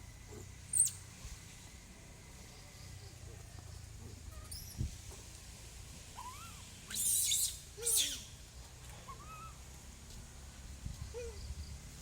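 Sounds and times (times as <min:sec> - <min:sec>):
baby monkey squeaking and cooing: 0:00.7 - 0:01.0, 0:04.4 - 0:04.9, 0:06.2 - 0:08.3, 0:09.1 - 0:09.6.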